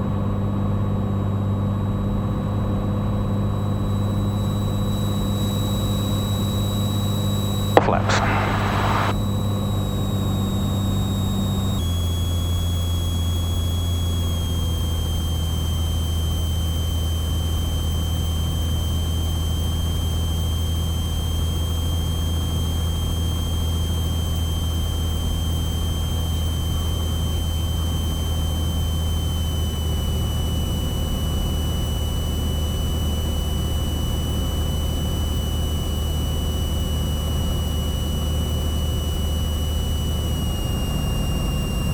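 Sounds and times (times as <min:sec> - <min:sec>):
brief hiss: 0:07.8 - 0:09.1.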